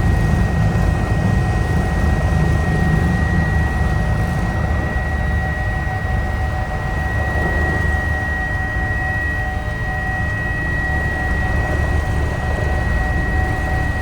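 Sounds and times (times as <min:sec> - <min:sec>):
helicopter rotor and turbine: 0:00.0 - 0:14.0.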